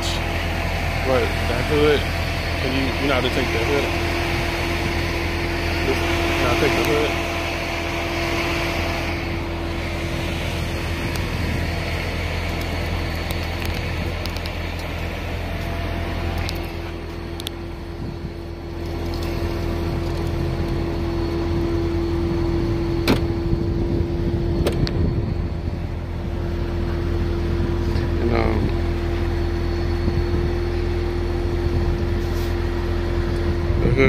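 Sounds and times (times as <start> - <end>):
low mechanical hum: 0.0 - 34.0
sharp clicks: 12.5 - 14.9.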